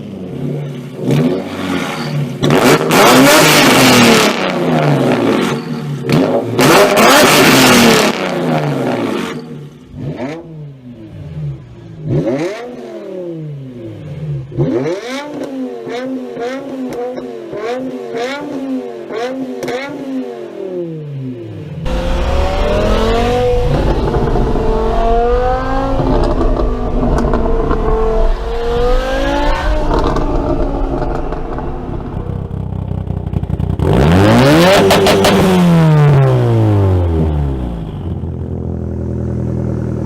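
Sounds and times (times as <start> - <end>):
car engine revving: 0.0 - 39.9
car accelerating through gears: 1.0 - 9.4, 21.8 - 32.9, 33.8 - 37.7
loud car passing by: 21.8 - 36.0.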